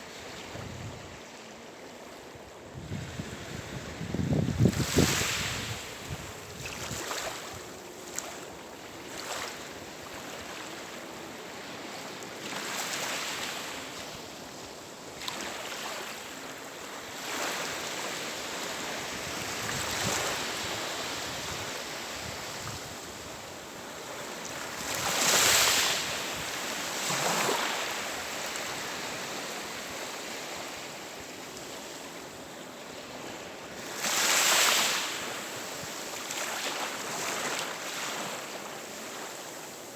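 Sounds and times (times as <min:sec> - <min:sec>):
waves breaking: 0:03.1 - 0:14.0, 0:24.0 - 0:30.8.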